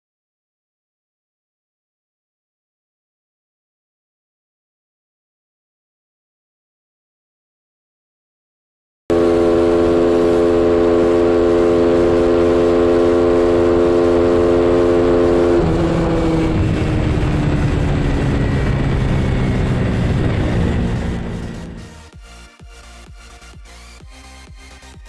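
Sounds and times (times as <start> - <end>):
train horn blast: 9.1 - 17.6.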